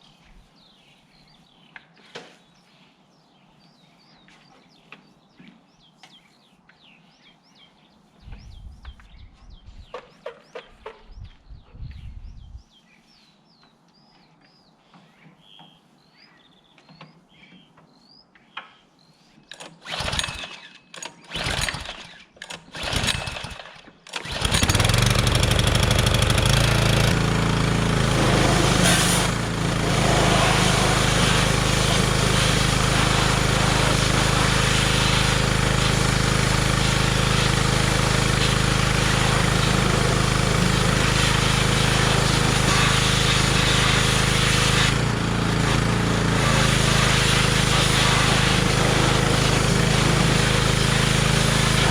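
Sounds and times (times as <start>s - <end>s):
engine cranking and running: 19.5s - 51.9s.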